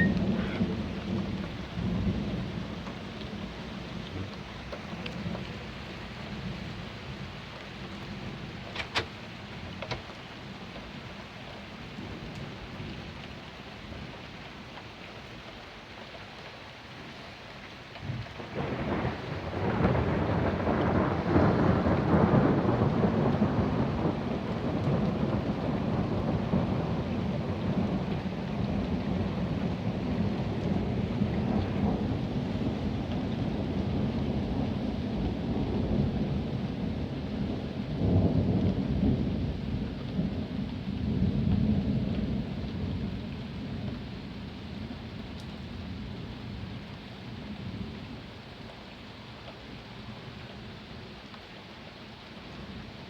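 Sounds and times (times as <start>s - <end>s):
thunder rumbling: 0.0s - 9.8s, 18.0s - 46.8s
steady rain: 0.0s - 53.0s.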